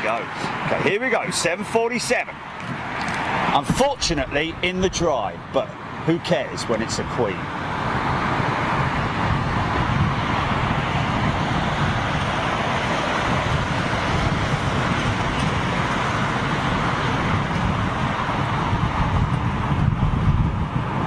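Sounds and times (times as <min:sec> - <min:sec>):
jet airliner passing: 0:00.0 - 0:21.0.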